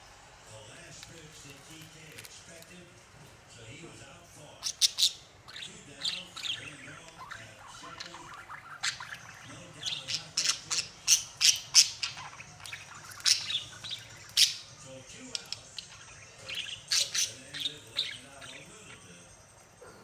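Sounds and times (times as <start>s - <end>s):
faint bird chatter: 4.4s - 20.0s
budgerigars chirping: 4.6s - 19.2s.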